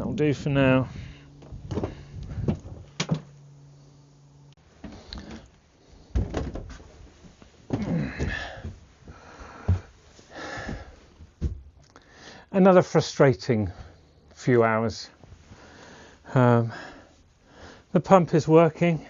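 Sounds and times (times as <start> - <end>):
steady low hum: 0.0 - 19.0
wood knocks and thumps: 1.4 - 3.3, 6.1 - 6.8.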